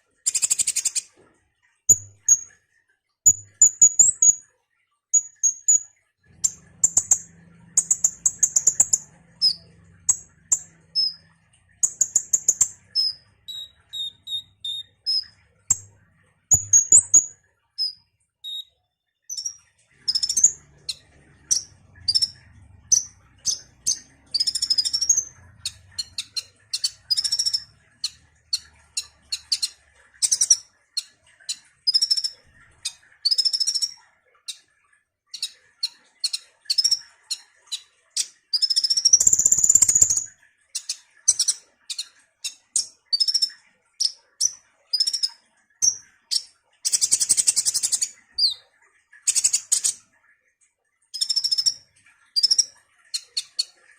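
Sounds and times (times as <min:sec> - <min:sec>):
rapid bird trill: 0:00.2 - 0:01.1, 0:05.2 - 0:15.9, 0:16.5 - 0:34.0, 0:38.5 - 0:48.6
bird chirping and twittering: 0:00.2 - 0:01.2, 0:01.9 - 0:02.6, 0:03.3 - 0:04.4, 0:05.1 - 0:50.1, 0:51.1 - 0:53.9.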